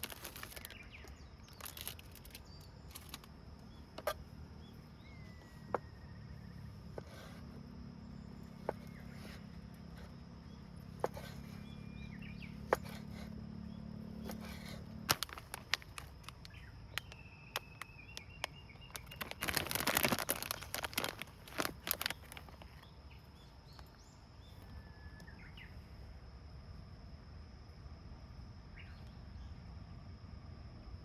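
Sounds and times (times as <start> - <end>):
crackling or rustling: 0.0 - 6.0, 8.3 - 13.4, 14.0 - 24.0
birds chirping: 0.0 - 26.0.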